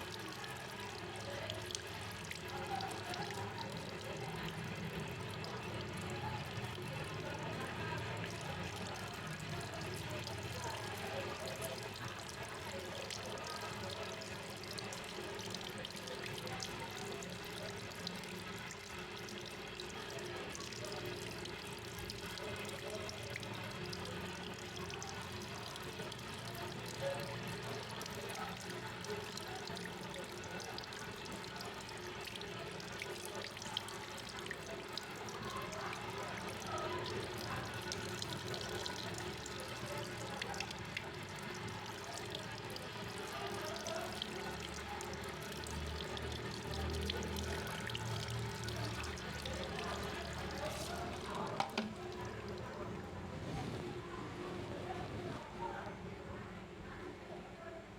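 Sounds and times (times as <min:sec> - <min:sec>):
tap water running into basin: 0:00.0 - 0:53.2.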